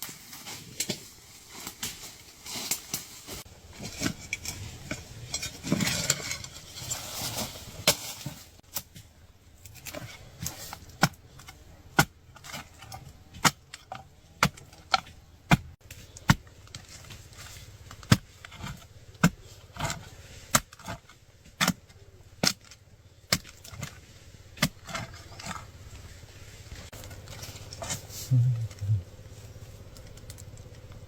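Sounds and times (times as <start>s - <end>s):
digging tool striking ground: 0.4s - 26.2s.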